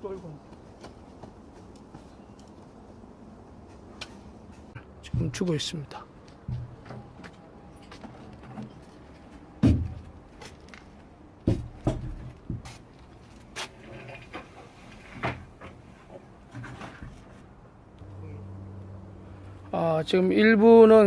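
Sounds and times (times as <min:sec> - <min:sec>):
knocks and thuds of digging: 0:04.0 - 0:05.6, 0:06.4 - 0:07.3, 0:09.6 - 0:10.2, 0:11.4 - 0:12.9.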